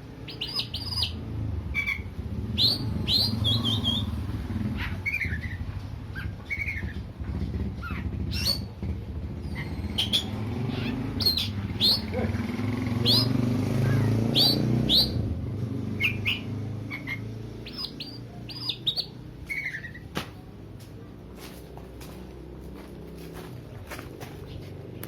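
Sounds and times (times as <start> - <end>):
bird chirping calls: 0.2 - 15.3, 15.9 - 20.1.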